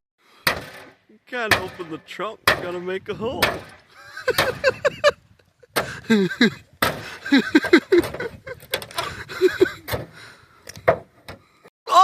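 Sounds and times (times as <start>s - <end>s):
hard strikes on car body: 0.4s - 2.7s, 3.4s - 3.8s, 6.8s - 7.0s.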